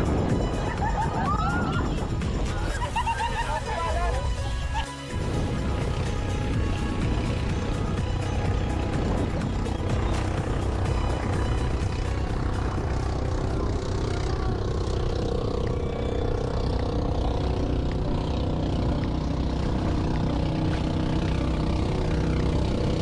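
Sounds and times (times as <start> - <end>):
wind and water rushing: 0.0 - 14.0
motorboat engine droning: 0.0 - 23.0.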